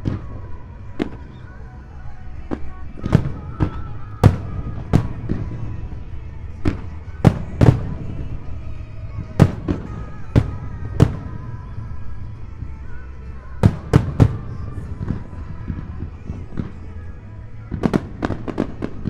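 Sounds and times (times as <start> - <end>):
continuous low rumble: 0.0 - 19.0
firework shells bursting: 6.7 - 8.5, 13.6 - 15.2.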